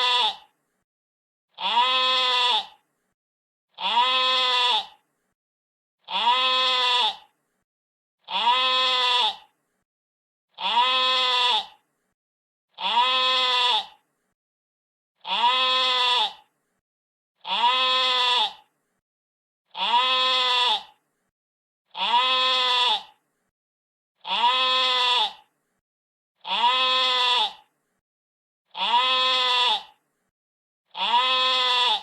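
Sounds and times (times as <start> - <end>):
sheep bleating: 0.0 - 0.5, 1.6 - 2.8, 3.8 - 5.0, 6.1 - 7.3, 8.3 - 9.5, 10.6 - 11.8, 12.8 - 14.0, 15.2 - 16.4, 17.4 - 18.7, 19.7 - 21.0, 21.9 - 23.2, 24.2 - 25.5, 26.4 - 27.7, 28.7 - 30.0, 30.9 - 32.0.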